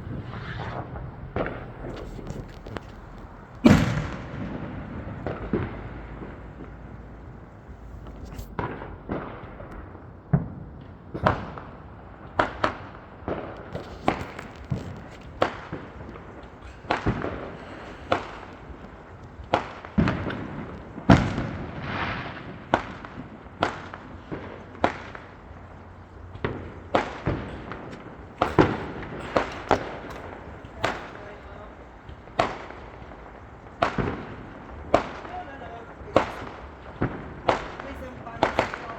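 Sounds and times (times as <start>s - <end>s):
fireworks bangs: 0.0s - 38.9s.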